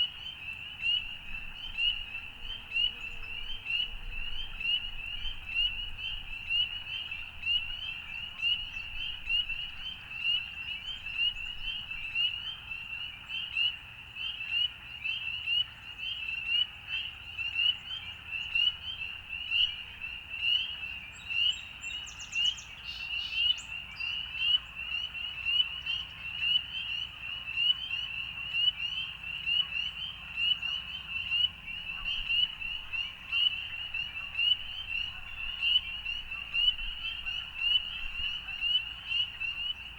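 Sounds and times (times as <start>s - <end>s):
chorus of frogs calling: 23.0s - 39.9s.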